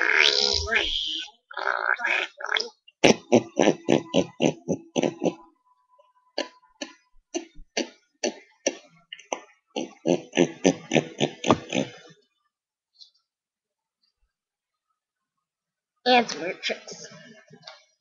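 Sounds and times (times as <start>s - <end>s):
guttural clicking grunts from mouth: 2.2s - 5.4s, 6.4s - 12.1s.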